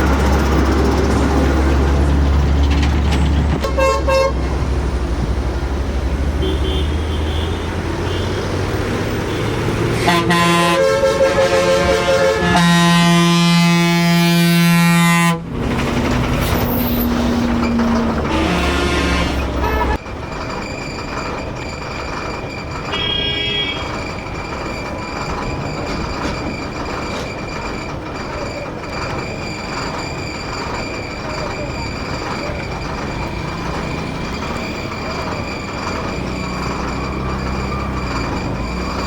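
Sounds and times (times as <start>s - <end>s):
truck engines running: 0.0s - 39.0s
vehicle horns: 3.6s - 4.5s, 6.3s - 8.6s, 9.2s - 15.5s, 17.8s - 20.0s, 22.9s - 24.0s.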